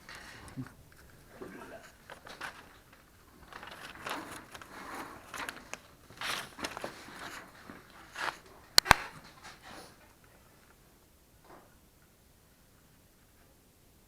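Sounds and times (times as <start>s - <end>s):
sharp click: 8.8s - 9.1s.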